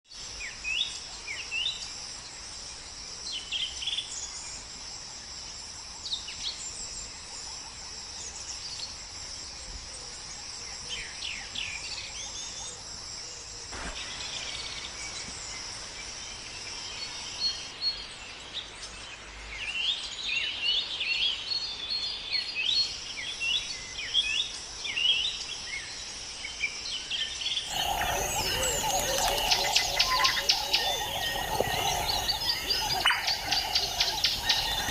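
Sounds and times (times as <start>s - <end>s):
crickets chirping: 0.1s - 18.4s, 22.3s - 34.9s
bird chirps: 27.6s - 34.9s.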